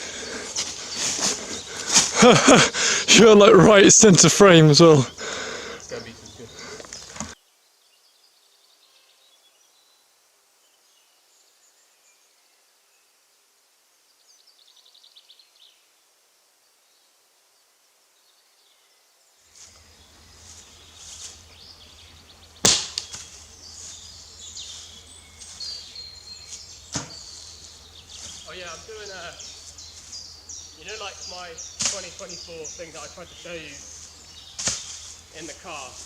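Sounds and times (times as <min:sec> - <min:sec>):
rustling: 0:00.0 - 0:02.2, 0:19.5 - 0:21.8, 0:22.6 - 0:28.6, 0:29.4 - 0:30.4, 0:33.8 - 0:36.0
faint chirps: 0:00.0 - 0:07.4
sharp cracks: 0:22.6 - 0:23.2, 0:31.8 - 0:32.2.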